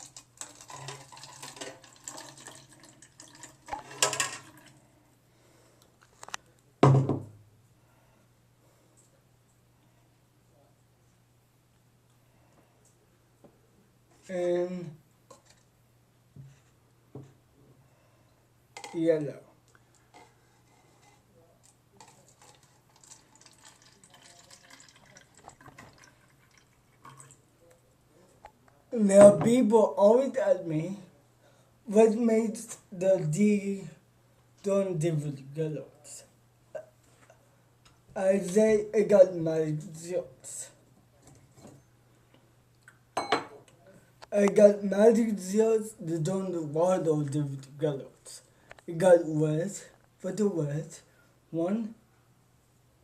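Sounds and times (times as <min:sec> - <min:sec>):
water pouring into a cup: 0:00.0 - 0:04.8, 0:22.0 - 0:27.4
thump: 0:06.8 - 0:07.4.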